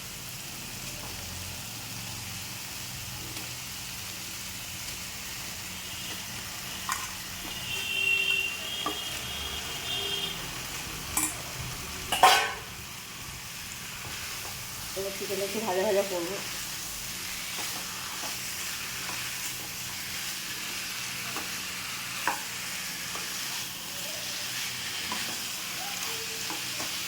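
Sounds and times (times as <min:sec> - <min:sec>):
chicken sizzling in oil: 0:00.0 - 0:27.0
spoon clicking against pan: 0:11.1 - 0:11.4.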